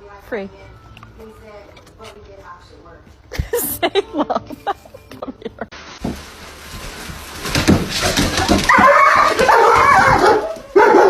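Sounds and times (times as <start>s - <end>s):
rustling: 5.7s - 10.8s.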